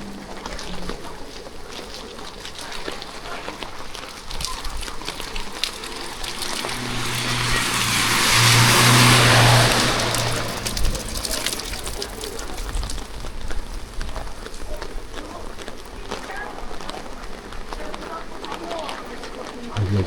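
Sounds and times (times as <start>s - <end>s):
rain ticking on street: 0.0s - 20.0s
tyres hissing on wet road: 0.1s - 13.2s
vehicle engine hum: 4.6s - 13.1s, 19.8s - 20.0s.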